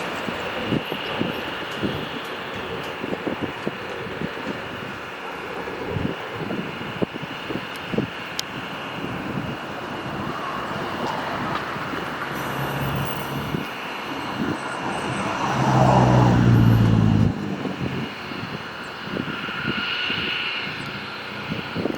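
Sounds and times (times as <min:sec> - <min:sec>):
machinery engine rushing: 0:00.0 - 0:21.9
loud low hum: 0:16.1 - 0:18.1.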